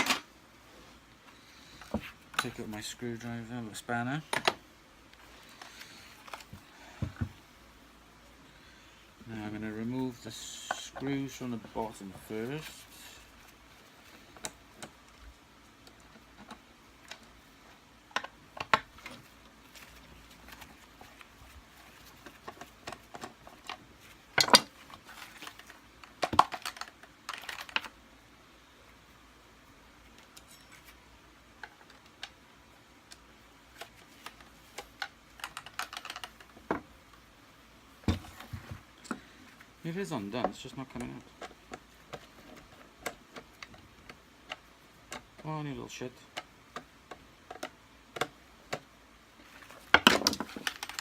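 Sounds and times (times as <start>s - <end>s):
plastic clatter: 21.8s - 27.9s, 33.8s - 36.8s, 49.5s - 51.0s.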